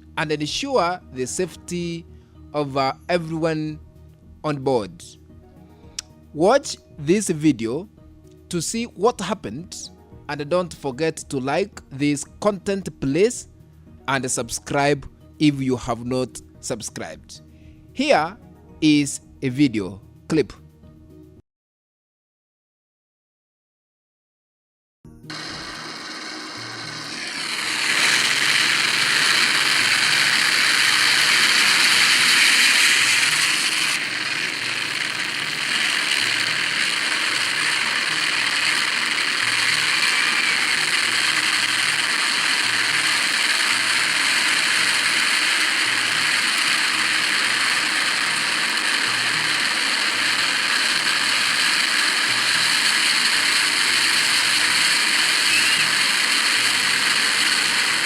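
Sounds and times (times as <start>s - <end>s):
helicopter engine and rotor: 26.4s - 58.0s.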